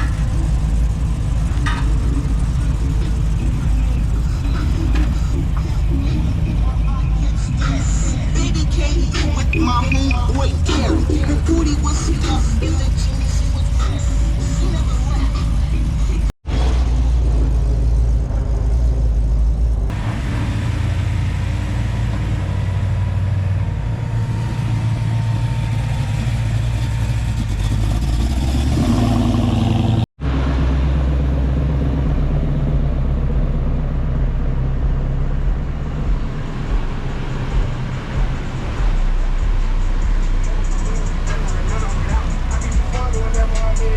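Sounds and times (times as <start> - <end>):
car engines running: 0.0 - 43.9.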